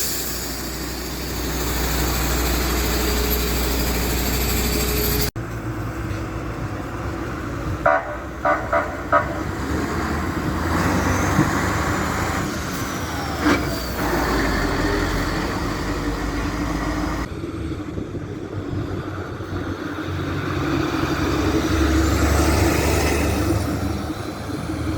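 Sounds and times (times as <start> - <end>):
diesel engines running: 0.0 - 24.9
fire truck horn toots: 7.8 - 9.6.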